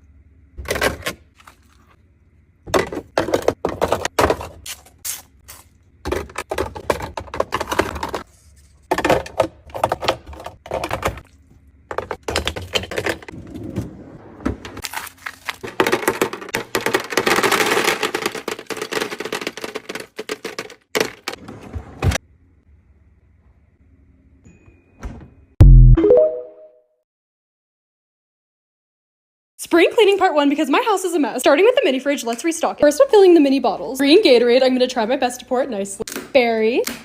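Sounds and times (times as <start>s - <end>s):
plastic containers clattering: 2.7s - 4.6s, 6.0s - 8.3s, 8.9s - 11.3s, 11.9s - 13.4s, 14.5s - 21.4s.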